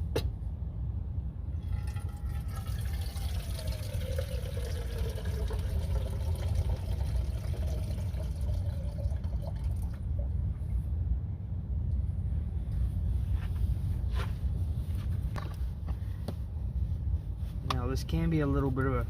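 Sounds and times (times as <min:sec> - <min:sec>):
water pouring into metal pot: 0:01.6 - 0:10.0.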